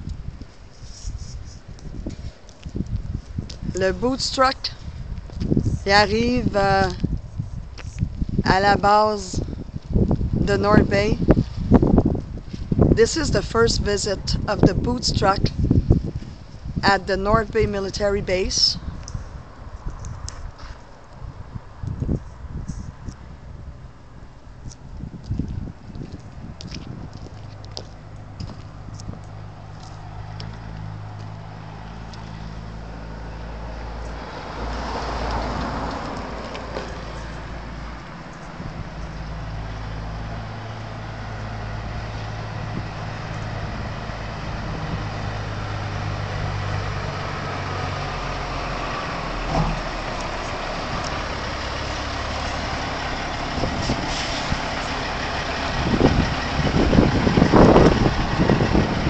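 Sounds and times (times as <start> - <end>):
truck engine idling: 36.2 - 59.0.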